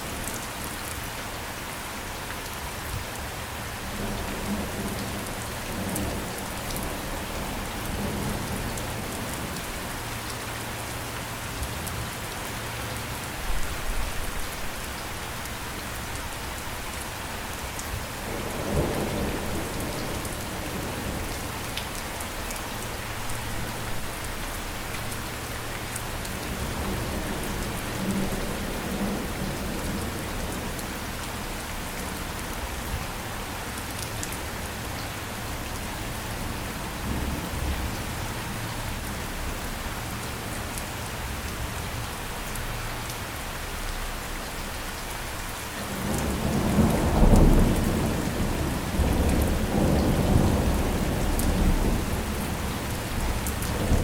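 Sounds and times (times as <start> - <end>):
rolling rumble of thunder: 18.2 - 21.4, 45.9 - 54.0
heavy rain hissing: 34.4 - 54.0.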